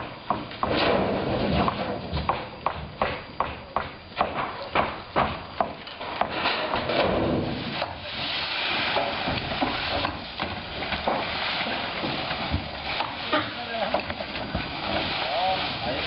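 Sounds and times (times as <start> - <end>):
sharp knocks on wood: 2.2 - 6.4.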